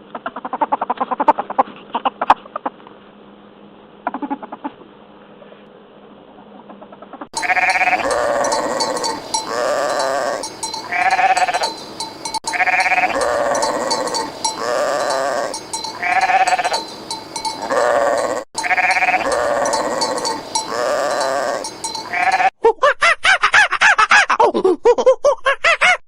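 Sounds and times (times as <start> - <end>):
sheep bleating: 7.4 - 22.5.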